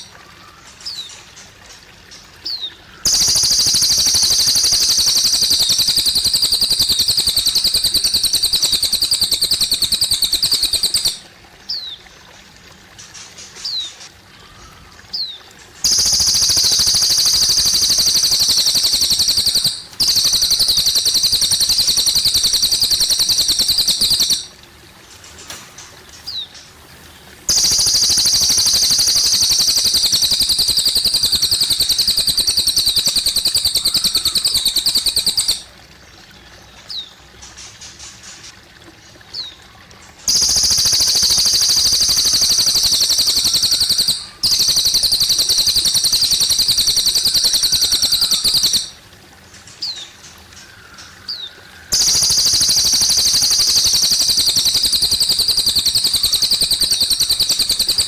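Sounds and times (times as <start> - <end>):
faint water trickling: 0.0 - 58.0
down-slurred bird chirps: 2.5 - 11.9, 15.2 - 24.6, 27.5 - 35.7, 40.3 - 49.0, 51.0 - 58.0
songbird singing high trills: 2.5 - 11.9, 15.2 - 24.6, 27.5 - 35.7, 40.3 - 49.0, 51.0 - 58.0.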